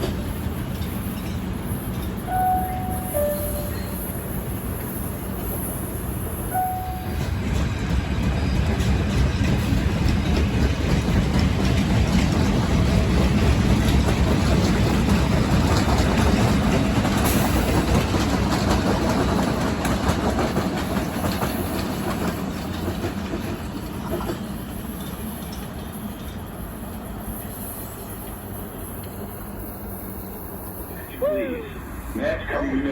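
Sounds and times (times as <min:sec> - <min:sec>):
train rumbling over rails: 0:00.0 - 0:32.9
rapid train wheel clicks: 0:07.2 - 0:29.6.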